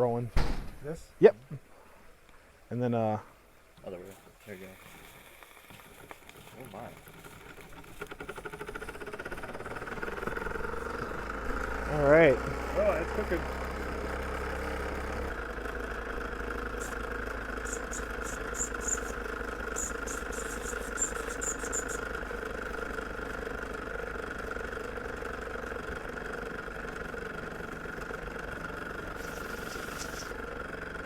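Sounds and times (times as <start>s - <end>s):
steam hissing with steady tone: 29.2s - 30.4s.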